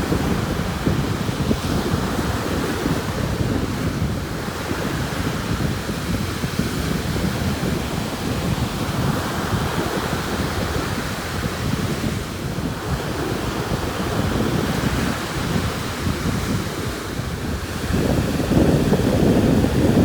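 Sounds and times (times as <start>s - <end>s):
ocean surf washing in: 0.0s - 20.0s
wind buffeting microphone: 0.0s - 20.0s.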